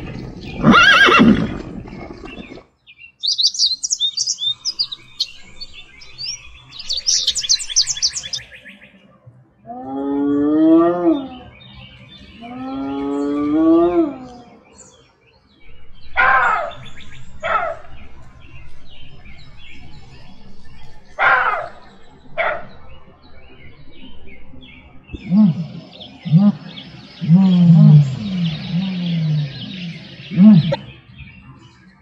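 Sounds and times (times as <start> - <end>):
low animal calls: 0.0 - 2.6, 25.1 - 30.9
faint birds twittering: 0.0 - 32.0
hyena whooping calls: 0.6 - 1.5
jackal yelps: 0.6 - 1.5, 16.2 - 16.8, 21.2 - 21.8.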